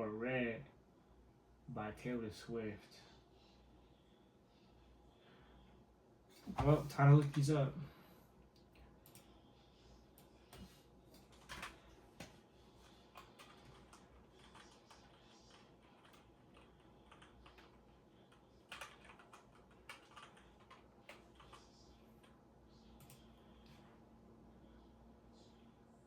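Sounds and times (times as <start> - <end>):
typing on computer keyboard: 9.0 - 9.3, 10.5 - 12.3, 13.0 - 22.4.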